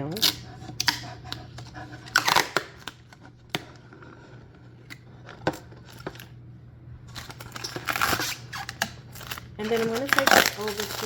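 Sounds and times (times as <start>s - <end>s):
steady low hum: 0.0s - 11.0s
plastic film peeling and crinkling: 7.1s - 11.0s.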